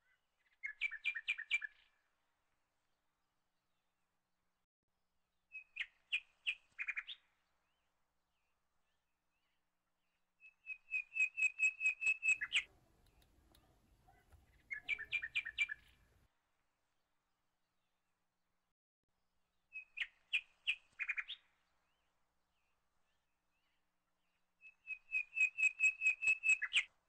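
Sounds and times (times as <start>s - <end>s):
bird chirping: 10.4s - 16.2s.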